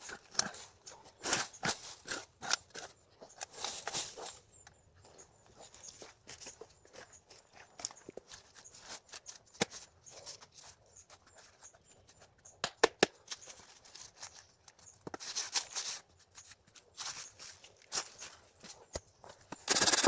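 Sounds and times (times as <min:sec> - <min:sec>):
rustling handling noise: 0:13.2 - 0:19.6
sharp clicks: 0:19.5 - 0:20.0.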